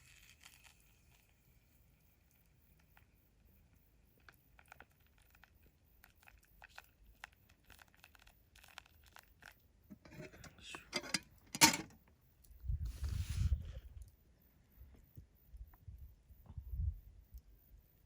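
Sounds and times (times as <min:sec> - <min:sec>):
crinkling and rustling: 0:09.9 - 0:12.0.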